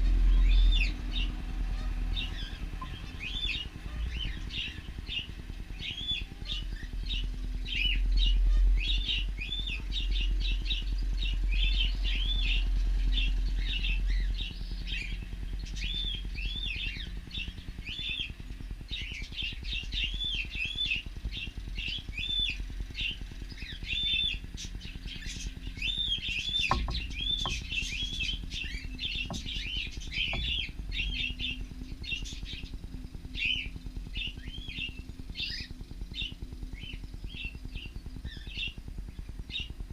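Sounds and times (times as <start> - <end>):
low rumble: 0.0 - 39.9
cockatiels chirping: 25.3 - 30.7
faint knocks: 26.7 - 27.7, 29.2 - 29.6.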